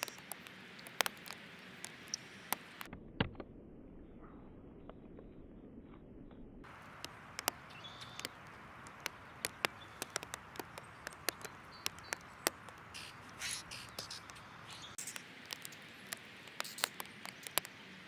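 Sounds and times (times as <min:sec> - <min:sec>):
birds tapping and clicking: 0:00.0 - 0:02.9, 0:06.6 - 0:18.0.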